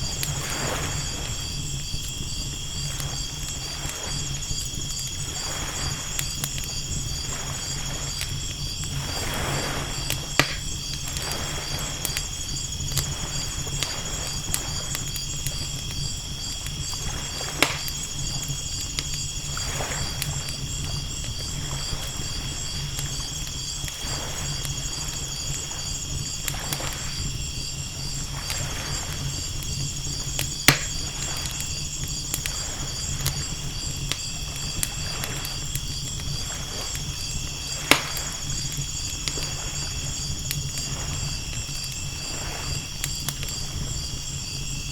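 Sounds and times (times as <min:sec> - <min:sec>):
waves washing in: 0:00.0 - 0:01.8, 0:02.7 - 0:15.7, 0:19.4 - 0:23.4, 0:36.4 - 0:44.0
campfire crackling and popping: 0:00.0 - 0:44.9
night insects trilling: 0:00.0 - 0:44.9.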